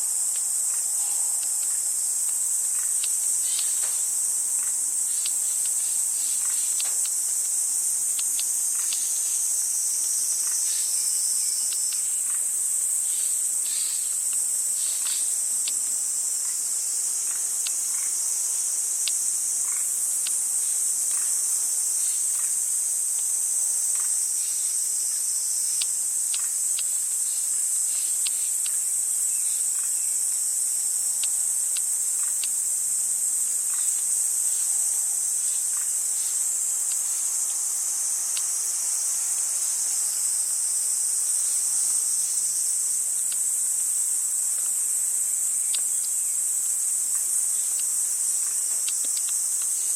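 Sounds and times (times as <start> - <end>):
insects chirping: 0.0 - 49.9.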